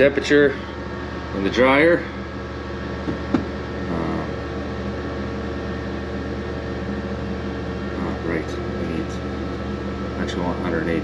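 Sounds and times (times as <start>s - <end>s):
grain dryer fan and burner hum: 0.0s - 11.0s.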